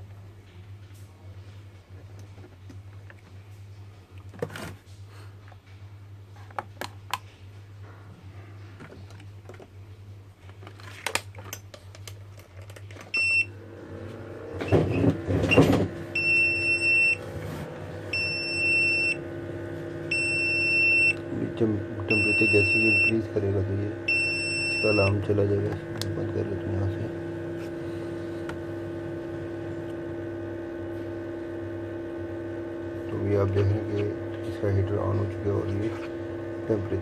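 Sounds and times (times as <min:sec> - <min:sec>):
low electrical hum: 0:00.0 - 0:37.0
alarm beeping: 0:16.2 - 0:17.2, 0:18.1 - 0:19.2, 0:20.1 - 0:21.2, 0:22.1 - 0:23.2, 0:24.1 - 0:25.2.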